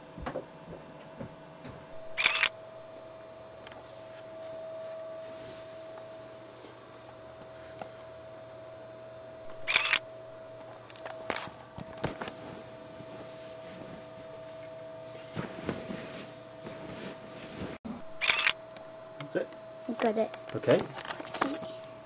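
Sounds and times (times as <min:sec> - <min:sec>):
faint steady hum: 0:00.0 - 0:22.0
camera shutter clatter: 0:02.2 - 0:02.5, 0:09.7 - 0:10.0, 0:18.2 - 0:18.6.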